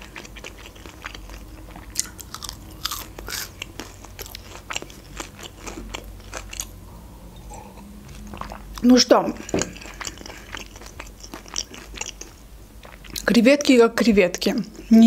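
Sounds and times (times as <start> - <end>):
chewing crispy fried shrimp: 0.0 - 6.8, 8.3 - 13.3.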